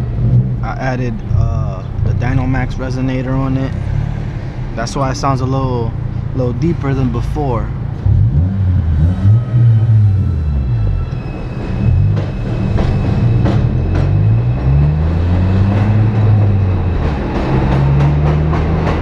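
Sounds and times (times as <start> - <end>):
car engine accelerating: 5.9 - 19.0
sharp knocks and rattles: 11.3 - 19.0.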